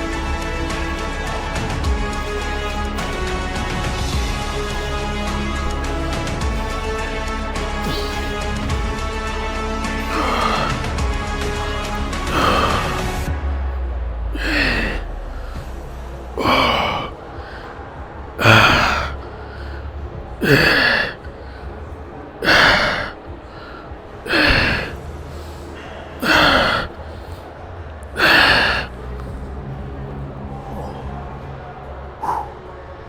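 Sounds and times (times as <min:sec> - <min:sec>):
person exhaling forcefully: 0:07.7 - 0:08.9, 0:10.1 - 0:11.0, 0:11.6 - 0:13.2, 0:14.4 - 0:15.7, 0:16.4 - 0:17.7, 0:18.4 - 0:19.8, 0:20.4 - 0:21.6, 0:22.4 - 0:25.5, 0:26.2 - 0:27.0, 0:28.2 - 0:28.9, 0:32.2 - 0:32.6.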